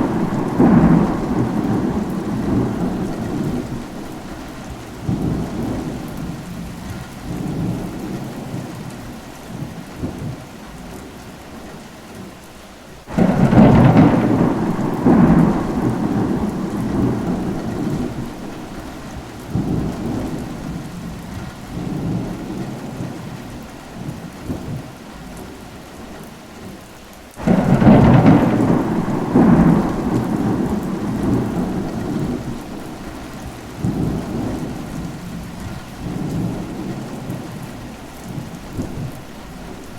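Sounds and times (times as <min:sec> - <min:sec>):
loud thunderclaps: 0:00.0 - 0:08.8, 0:13.1 - 0:23.4, 0:27.4 - 0:39.9
low thunder rumbling: 0:00.0 - 0:08.9, 0:13.1 - 0:25.0, 0:27.4 - 0:39.9
steady rain: 0:00.0 - 0:39.9.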